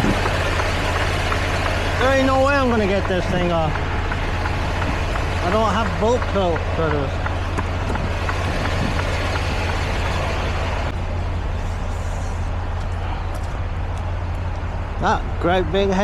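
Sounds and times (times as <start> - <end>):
diesel truck engine idling: 0.0 - 16.0
rain hissing: 6.6 - 10.9.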